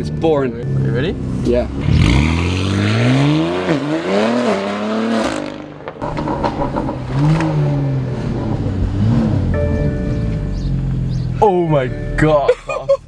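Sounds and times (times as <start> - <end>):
car engine accelerating hard: 0.6 - 12.3
exhaust crackles and pops: 5.6 - 9.5.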